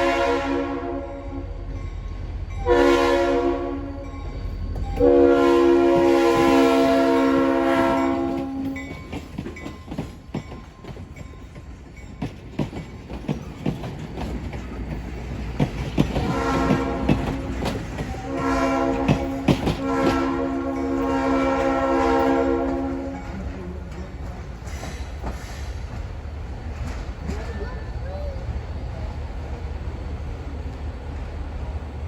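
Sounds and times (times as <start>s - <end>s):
train horn blast: 0.0s - 1.6s, 2.6s - 4.2s, 5.0s - 8.8s, 16.1s - 23.5s
train wheels clicking on rail joints: 7.5s - 28.6s.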